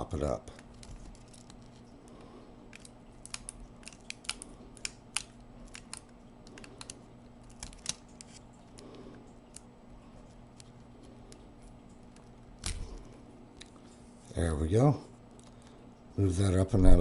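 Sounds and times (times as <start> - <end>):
faint electrical hum: 0.0 - 17.0
small clicks and scratches: 0.5 - 13.0.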